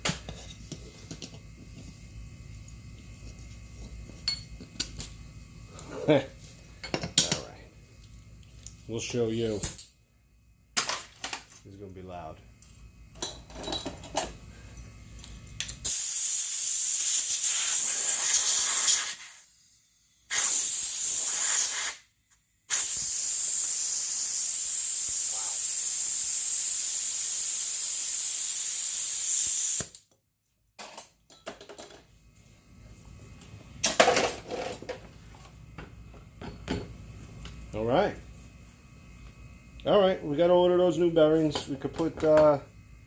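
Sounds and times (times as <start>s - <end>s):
compressed air hissing from blow gun: 15.8s - 19.6s, 20.3s - 22.1s, 22.7s - 29.9s.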